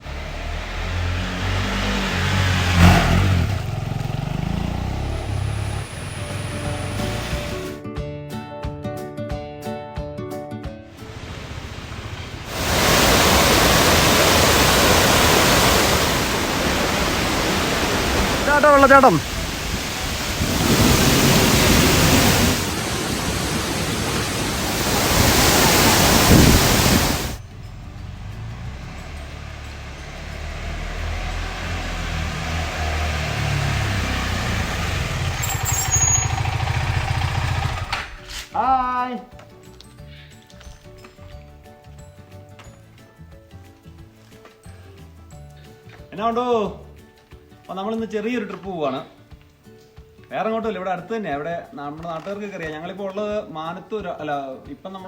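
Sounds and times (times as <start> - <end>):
motorcycle engine revving: 0.0 - 7.8, 11.3 - 38.3
waterfall rushing: 4.7 - 7.8, 11.0 - 27.4, 28.2 - 37.7.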